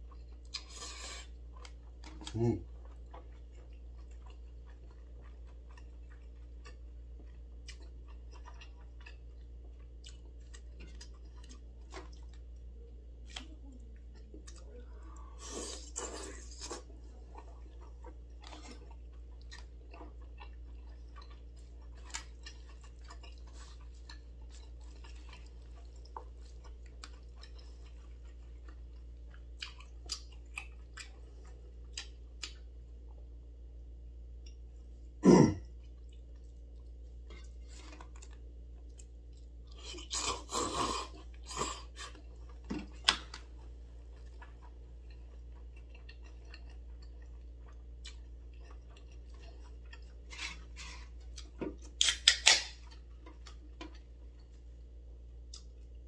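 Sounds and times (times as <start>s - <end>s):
person chewing noodles: 0.0s - 33.5s, 34.1s - 56.0s
steady low hum: 0.0s - 52.0s.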